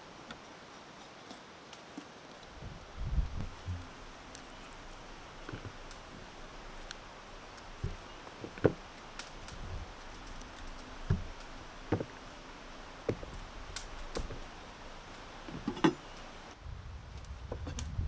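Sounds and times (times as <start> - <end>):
light knocks and taps: 3.4 - 16.5.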